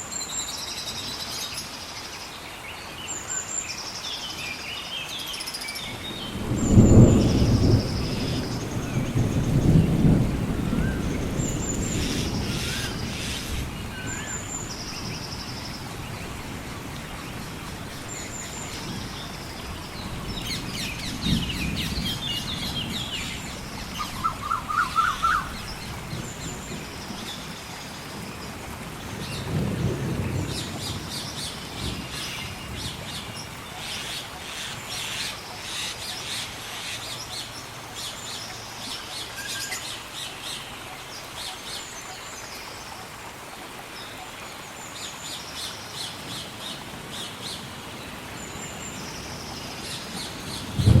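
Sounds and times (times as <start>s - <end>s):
gentle rain: 0.0s - 51.0s
distant thunder rumbling: 5.9s - 27.6s, 28.2s - 33.5s, 49.8s - 51.0s
birds chirping and singing: 20.0s - 27.3s.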